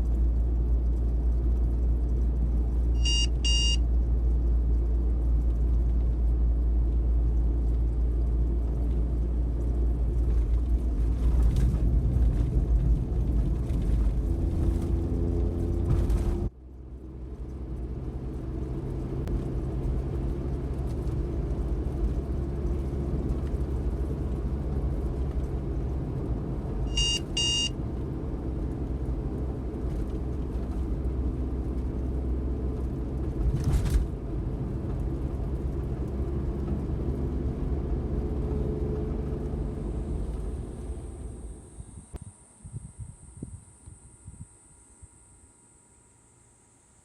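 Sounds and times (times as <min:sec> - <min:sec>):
van engine and road noise: 0:00.0 - 0:47.0
short electronic beeps: 0:03.0 - 0:03.8, 0:26.9 - 0:27.7.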